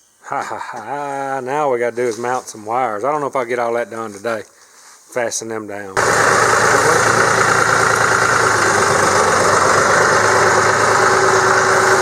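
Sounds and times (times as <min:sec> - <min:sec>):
vehicle engine idling: 0:06.0 - 0:12.0.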